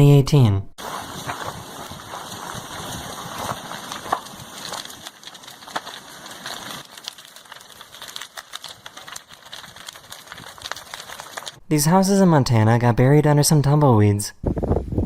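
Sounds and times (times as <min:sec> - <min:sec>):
fire crackling and snapping: 0:00.8 - 0:11.6.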